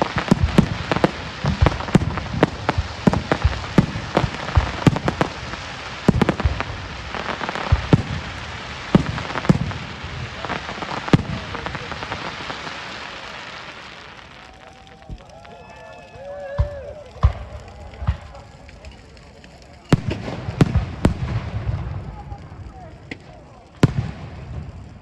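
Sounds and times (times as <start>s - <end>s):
fireworks bangs: 0.0s - 25.0s
fireworks crackle: 0.0s - 25.0s.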